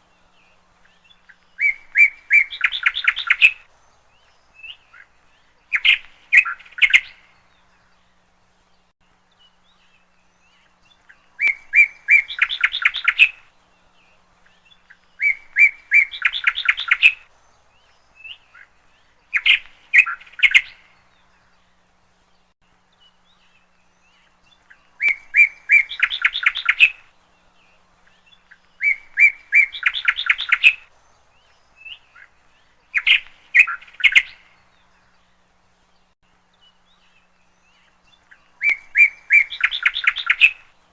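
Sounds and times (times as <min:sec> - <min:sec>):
bird singing with trill: 0:00.0 - 0:40.9.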